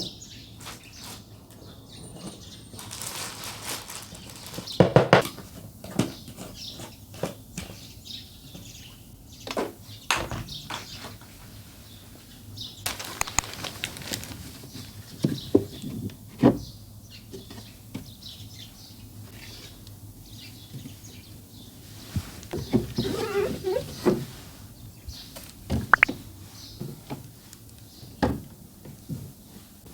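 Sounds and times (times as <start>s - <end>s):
rustling: 2.1s - 4.9s, 12.9s - 15.0s.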